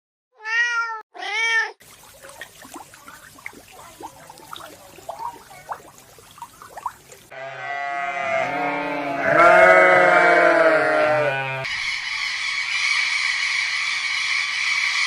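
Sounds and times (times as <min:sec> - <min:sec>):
farm animal calling: 0:03.2 - 0:11.7.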